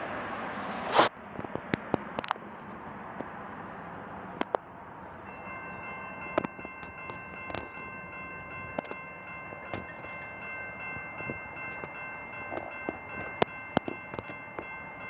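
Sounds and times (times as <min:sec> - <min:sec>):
crossing bell ringing: 0:04.0 - 0:15.0.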